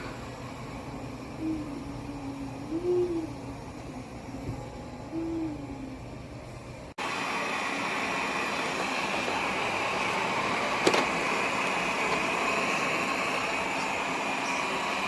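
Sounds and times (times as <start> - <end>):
robot vacuum whirring: 7.2 - 15.0.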